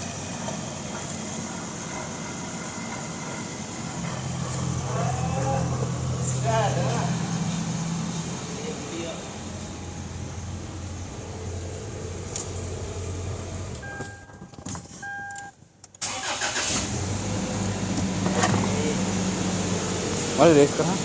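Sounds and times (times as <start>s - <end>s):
car engine running and idling: 0.0s - 15.0s, 16.0s - 21.0s
short beeps: 13.8s - 14.4s, 15.0s - 15.5s.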